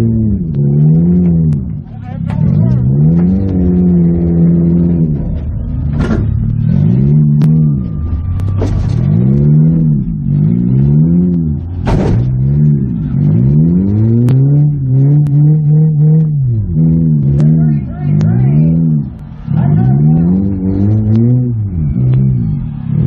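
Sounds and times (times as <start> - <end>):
car engine revving: 0.0 - 23.0
sharp bangs: 2.2 - 13.3.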